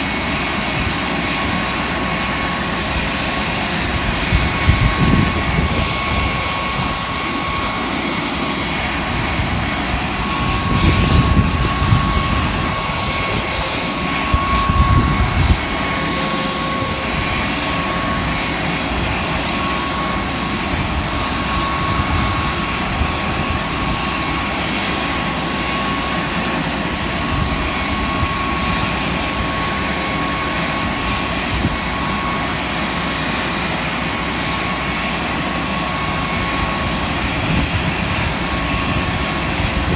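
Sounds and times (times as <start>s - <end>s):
low rumble surges: 0.0s - 24.3s
jet engines whining and roaring: 0.0s - 39.9s.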